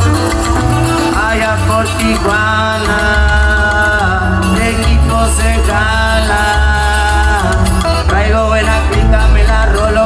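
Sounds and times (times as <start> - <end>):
guitar: 0.0 - 10.0
heavy bass line: 0.0 - 10.0
person singing: 0.0 - 10.0.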